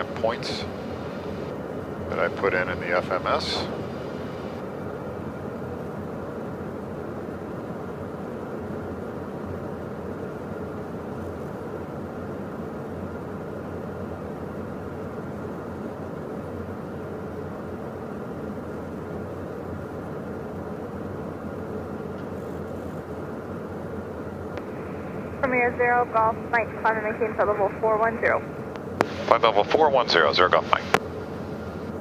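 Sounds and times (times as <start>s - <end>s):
jet cockpit drone: 0.0s - 32.0s.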